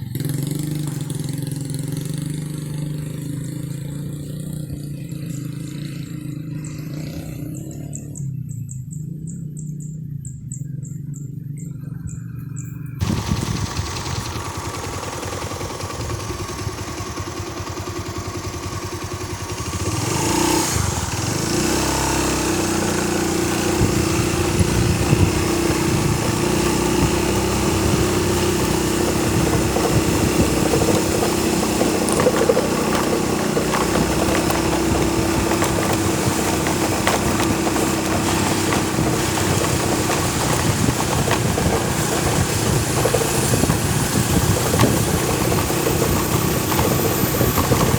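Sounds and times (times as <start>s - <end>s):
small engine running: 13.0s - 47.9s.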